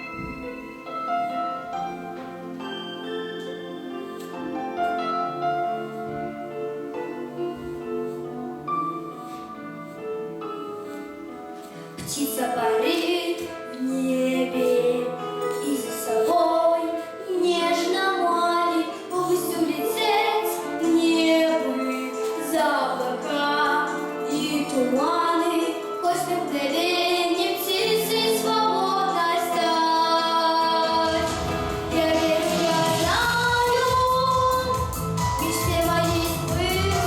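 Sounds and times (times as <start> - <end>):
instrumental backing chords: 0.0 - 37.0
woman singing pop song: 11.9 - 37.0.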